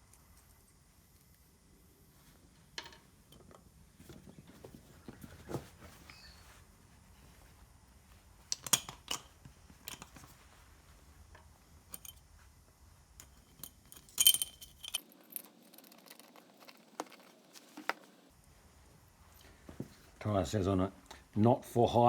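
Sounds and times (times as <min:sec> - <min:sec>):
metal bolts clinking on steel: 0:11.9 - 0:12.2, 0:13.2 - 0:16.0.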